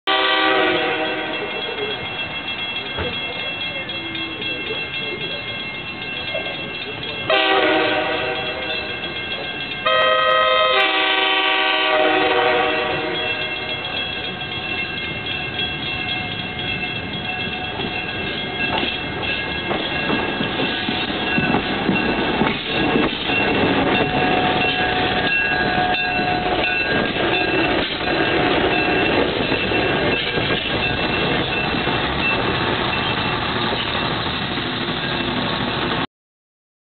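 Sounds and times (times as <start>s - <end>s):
train horn blasts: 0.1s - 1.4s, 7.3s - 8.6s, 9.8s - 13.4s
wheels clicking over rail joints: 13.2s - 36.0s.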